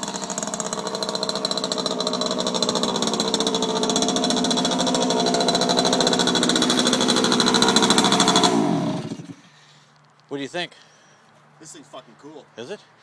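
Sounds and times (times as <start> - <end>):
small petrol engine running: 0.0 - 9.5.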